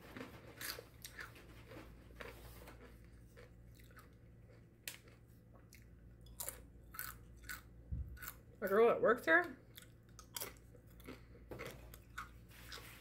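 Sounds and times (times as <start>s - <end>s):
person chewing crunchy chips: 0.0s - 8.6s, 9.6s - 13.0s.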